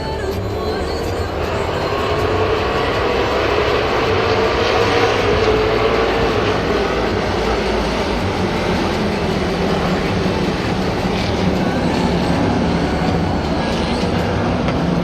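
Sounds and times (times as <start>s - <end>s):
race cars roaring past: 1.3s - 15.0s.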